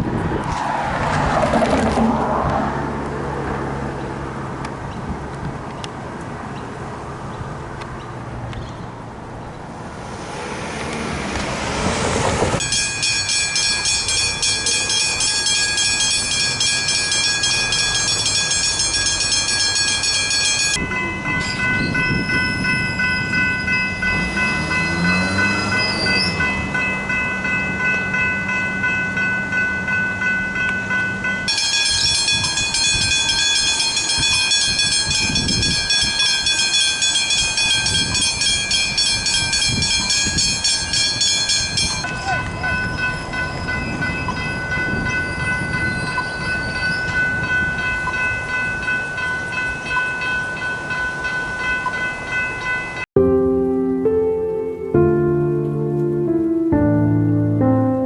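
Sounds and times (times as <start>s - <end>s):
train rumbling past: 9.0s - 54.3s
level crossing warning bells: 12.6s - 58.0s.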